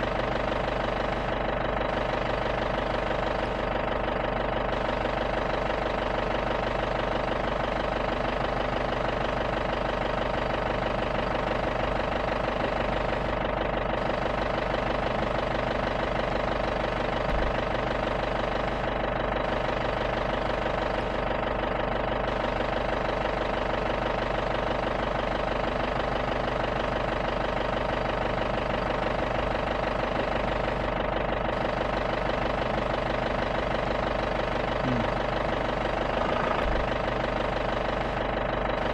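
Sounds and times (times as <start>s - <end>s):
jeep engine idling: 0.0s - 38.9s.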